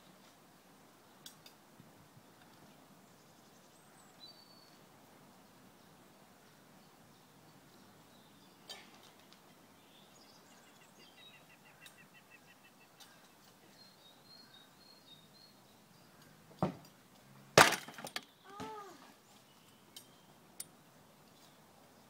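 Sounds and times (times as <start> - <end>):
faint birdsong chirps: 2.1 - 17.5, 18.1 - 22.0.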